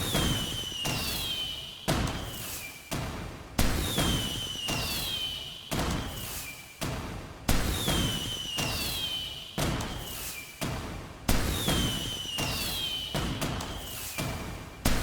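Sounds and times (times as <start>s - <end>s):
fireworks whistling: 0.1s - 1.6s, 3.8s - 5.5s, 7.8s - 9.4s, 11.6s - 14.2s.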